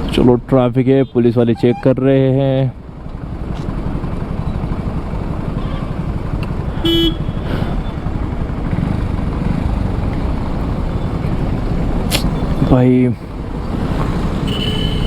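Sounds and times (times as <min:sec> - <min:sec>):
vehicle horn beep: 0:01.0 - 0:01.9, 0:06.8 - 0:07.5, 0:14.5 - 0:15.0
motorcycle engine idling: 0:02.8 - 0:11.9.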